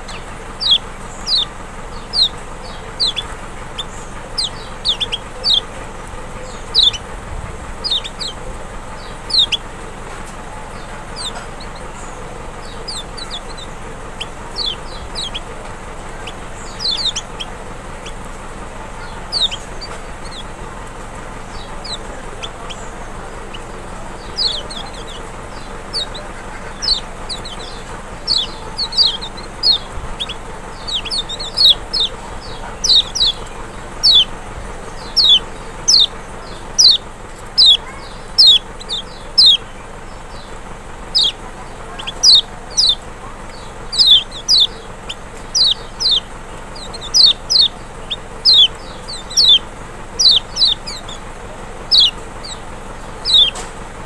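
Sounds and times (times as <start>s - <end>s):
bird singing high notes: 0.0s - 5.7s, 7.8s - 9.7s, 16.2s - 18.2s, 21.5s - 34.3s, 34.9s - 37.0s, 37.6s - 40.5s, 41.1s - 49.6s, 51.9s - 53.6s.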